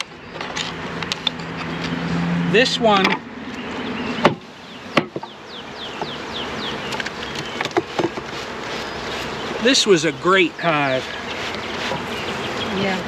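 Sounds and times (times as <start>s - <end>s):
honey bees buzzing: 0.0s - 13.0s
wooden knocks of hive boxes: 4.2s - 9.6s, 11.1s - 12.5s.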